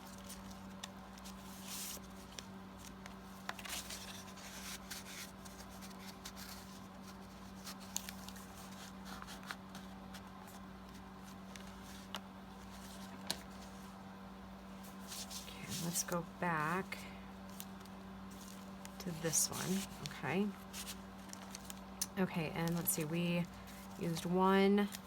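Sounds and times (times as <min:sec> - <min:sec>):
paper rustling: 0:00.0 - 0:14.0, 0:14.8 - 0:21.8
low electrical hum: 0:00.0 - 0:25.0.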